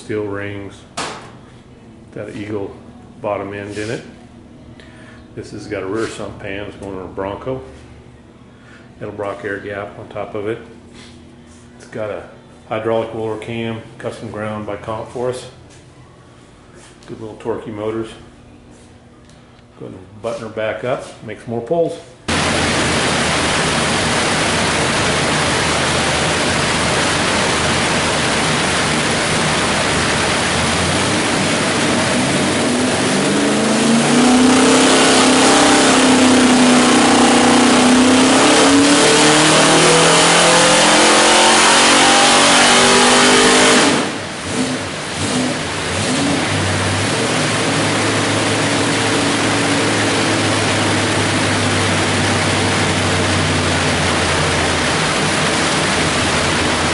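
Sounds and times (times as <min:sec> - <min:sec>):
engine revving on dyno: 0:22.3 - 0:56.9.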